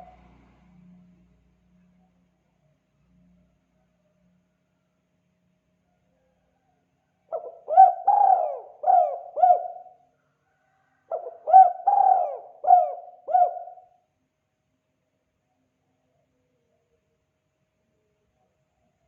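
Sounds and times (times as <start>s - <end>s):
dove cooing: 7.3s - 10.0s, 11.1s - 14.0s.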